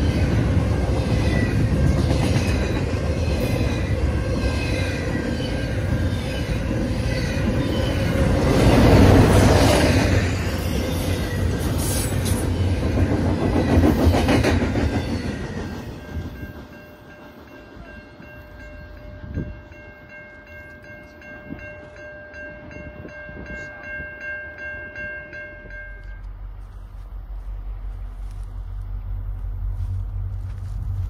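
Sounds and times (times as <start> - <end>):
freight train rolling past: 0.0 - 31.0
level crossing bell ringing: 15.8 - 26.3.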